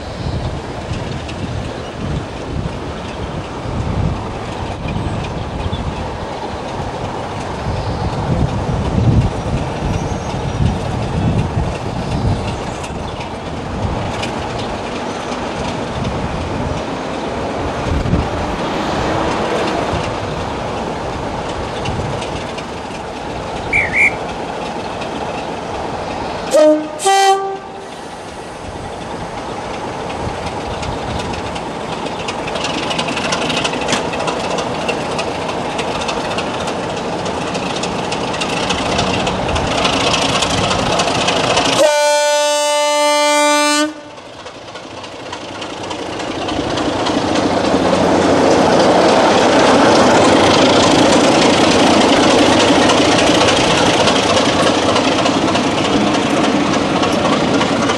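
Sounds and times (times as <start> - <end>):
locomotive engine and wheels: 0.0 - 57.9
locomotive two-tone horn: 26.5 - 27.9, 41.8 - 44.2.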